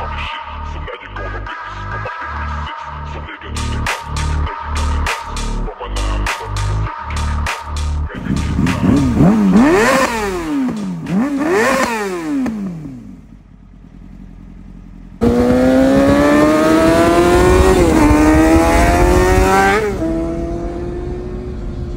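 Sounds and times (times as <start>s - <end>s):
motorcycle engine revving: 6.6s - 21.9s.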